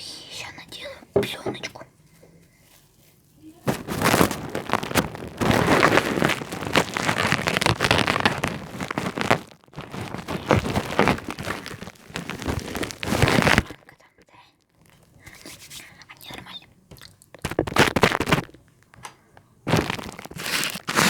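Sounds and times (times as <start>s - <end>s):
dense rain patter: 3.7s - 13.6s.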